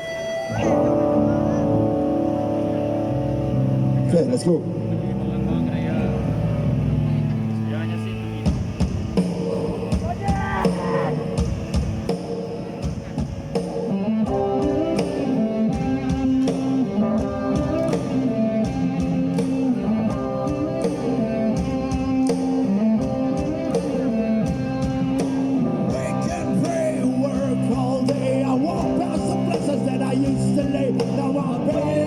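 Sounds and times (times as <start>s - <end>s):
repeating guitar melody: 0.0s - 32.0s
steady drum beat: 0.7s - 32.0s.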